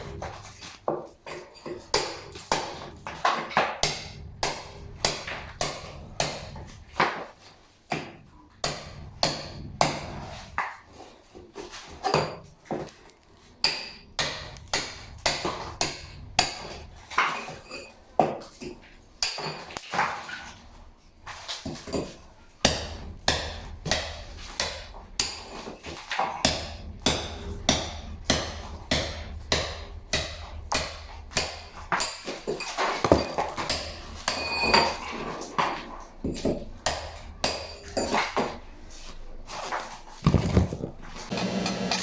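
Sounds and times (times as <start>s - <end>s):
low steady hum: 1.8s - 7.0s, 8.2s - 10.6s, 13.1s - 18.2s, 22.0s - 39.5s
sharp metallic knocks: 1.8s - 7.2s, 7.9s - 10.5s, 13.6s - 19.8s, 21.8s - 38.6s.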